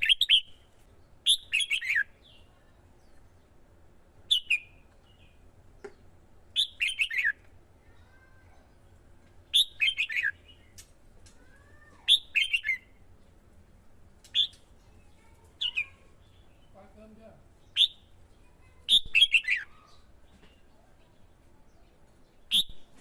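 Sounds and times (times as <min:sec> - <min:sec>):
bulbul chirping: 0:12.1 - 0:12.9, 0:17.7 - 0:18.2, 0:22.5 - 0:22.9.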